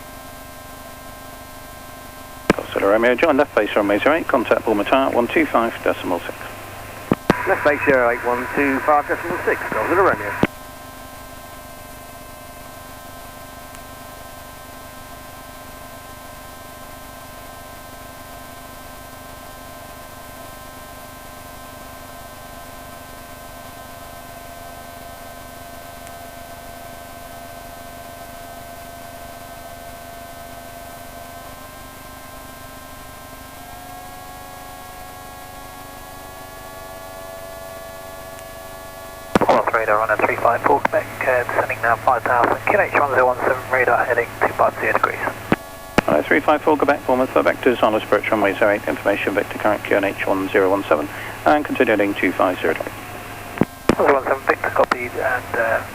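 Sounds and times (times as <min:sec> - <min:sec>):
intercom static: 0:02.5 - 0:10.5, 0:39.4 - 0:55.9
light aircraft engine drone: 0:02.5 - 0:10.5, 0:39.4 - 0:55.9.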